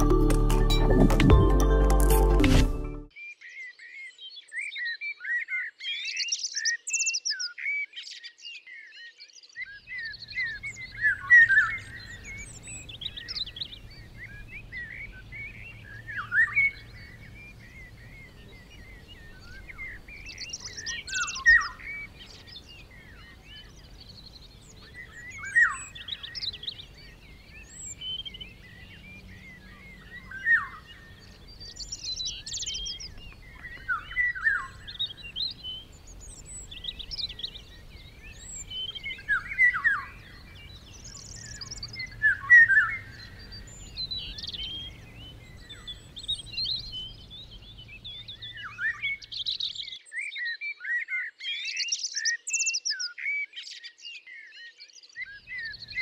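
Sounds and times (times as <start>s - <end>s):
songbirds chirping and singing: 3.1s - 56.0s.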